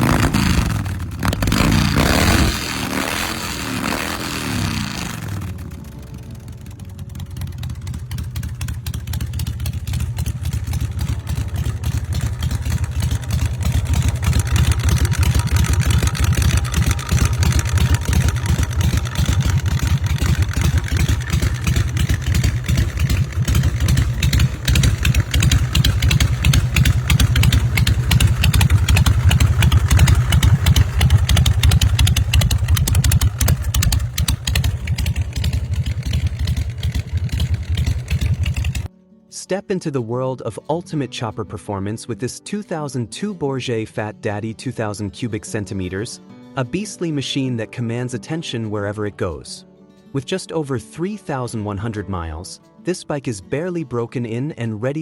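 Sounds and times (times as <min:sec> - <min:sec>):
motorcycle engine rumbling: 0:00.0 - 0:38.9.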